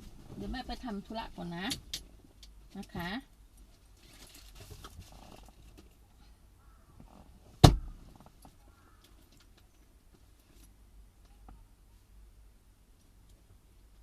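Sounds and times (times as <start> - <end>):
handling rustle: 3.6 - 6.0
loud thump: 7.6 - 8.0.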